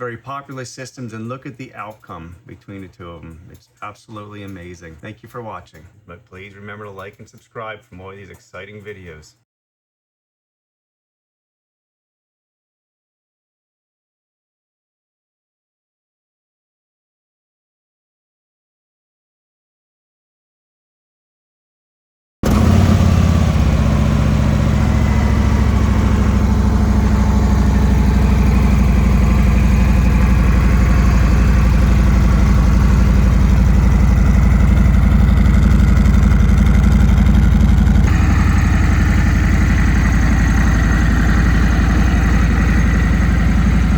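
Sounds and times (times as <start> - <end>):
motorcycle engine idling loudly: 22.4 - 43.9.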